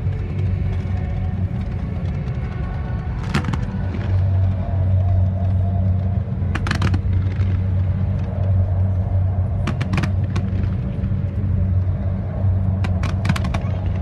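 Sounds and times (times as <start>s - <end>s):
boat engine drone: 0.0s - 14.0s
firework pops and crackles: 3.2s - 4.3s, 6.6s - 7.7s, 9.6s - 10.8s, 12.8s - 14.0s.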